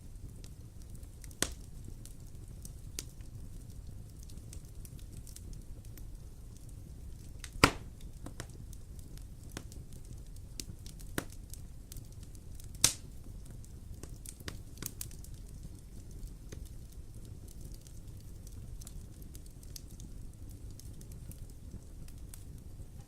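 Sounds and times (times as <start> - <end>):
low rumble of flames: 0.0 - 23.0
small fire crackles: 0.0 - 23.0
loud sharp wood pops: 7.5 - 7.9.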